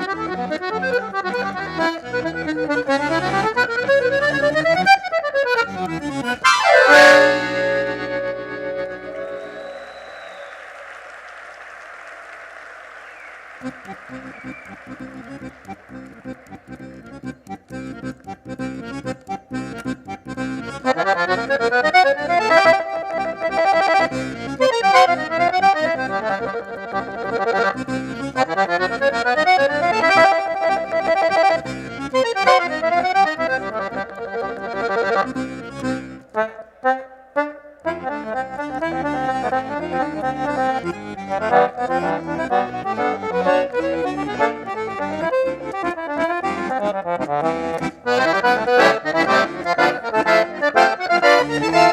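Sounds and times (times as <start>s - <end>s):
accordion playing: 0.0s - 11.0s, 13.6s - 51.9s.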